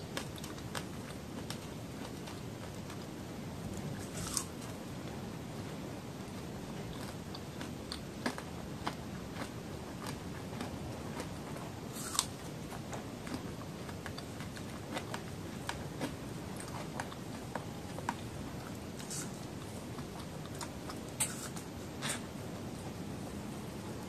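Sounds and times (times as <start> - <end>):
mouth chewing a crunchy snack: 3.7 - 4.8, 6.4 - 22.8.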